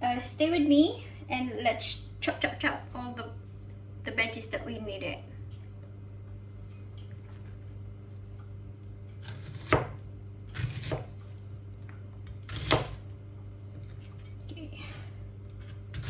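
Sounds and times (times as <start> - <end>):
knife cutting vegetables on board: 9.2 - 11.2, 12.3 - 13.0.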